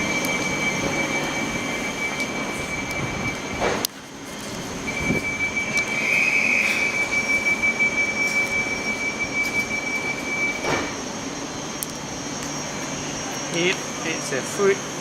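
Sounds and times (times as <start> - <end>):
train rumble: 0.0 - 15.0
high-pitched wheel squeal: 4.8 - 10.8.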